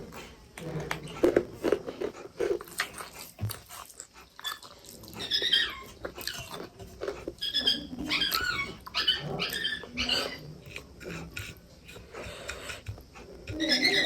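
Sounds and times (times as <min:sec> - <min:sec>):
people chewing: 0:00.0 - 0:14.0
dog whining: 0:04.4 - 0:06.5, 0:07.4 - 0:10.5, 0:13.5 - 0:14.0.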